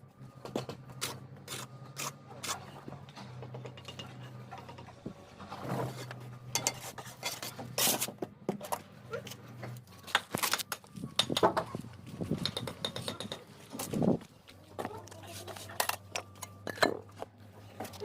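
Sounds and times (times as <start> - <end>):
trowel clinking and scraping bricks: 5.7 - 8.7, 15.0 - 17.2.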